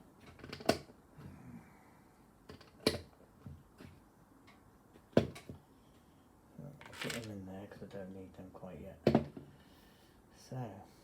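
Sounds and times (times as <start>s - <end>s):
plastic bricks clicking: 6.8s - 7.3s.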